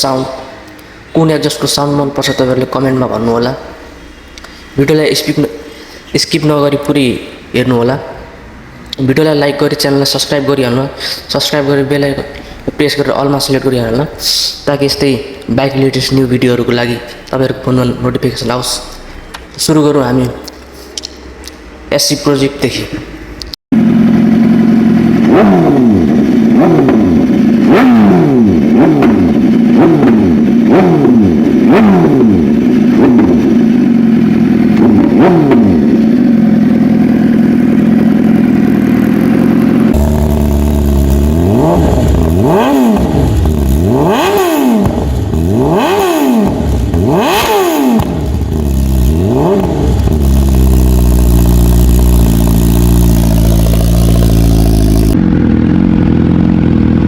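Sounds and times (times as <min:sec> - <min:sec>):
motorcycle engine idling: 0:23.8 - 0:57.0
motorcycle engine revving: 0:23.8 - 0:57.0.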